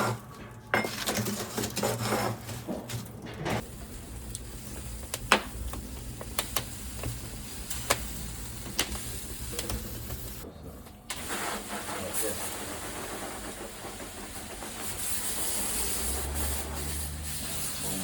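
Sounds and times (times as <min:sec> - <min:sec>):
food sizzling and popping: 0:03.6 - 0:10.4.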